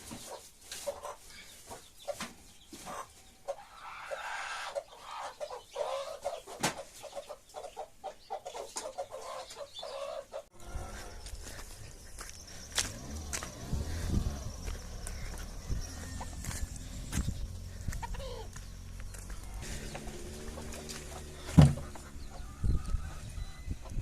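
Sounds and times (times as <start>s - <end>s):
chickens clucking: 0.0s - 24.0s
low rumble: 10.6s - 24.0s.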